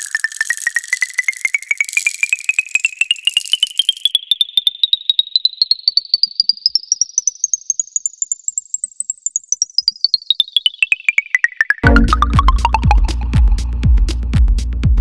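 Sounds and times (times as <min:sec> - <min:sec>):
hissing rattle-like layer: 0:00.0 - 0:04.0
rising synthesizer notes: 0:11.8 - 0:13.8.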